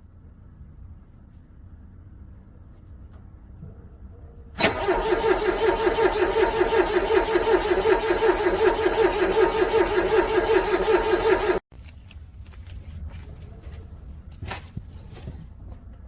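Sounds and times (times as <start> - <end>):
car engine cranking: 4.6 - 11.6.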